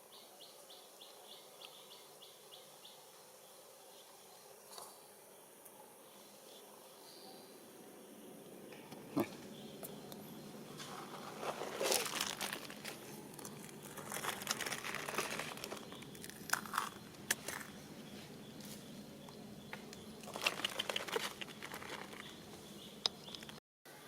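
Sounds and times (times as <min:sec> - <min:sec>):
crinkling and rustling: 0:10.7 - 0:18.9, 0:19.7 - 0:22.5.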